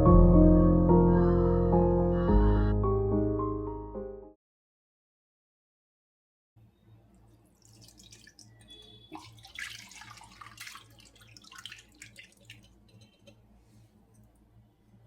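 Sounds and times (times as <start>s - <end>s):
water dripping and splashing: 7.1s - 13.4s.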